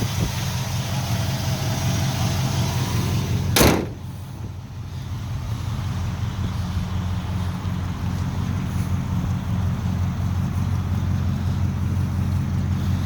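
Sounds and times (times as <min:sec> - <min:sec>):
car engine idling: 0:00.0 - 0:13.0
car door shutting: 0:03.5 - 0:04.2.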